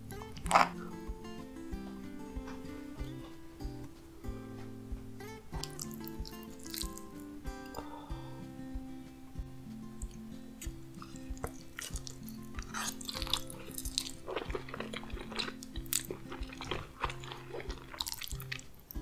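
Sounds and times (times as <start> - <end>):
background music with held notes: 0.0 - 19.0
person chewing food: 0.3 - 0.9, 5.6 - 7.0, 11.0 - 19.0.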